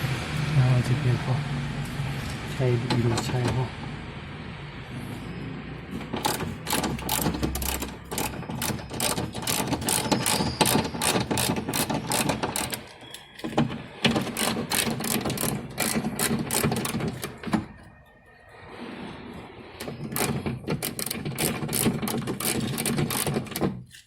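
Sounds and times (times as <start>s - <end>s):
ratchet tool clicking: 6.2s - 13.2s, 14.2s - 17.3s, 20.2s - 24.0s.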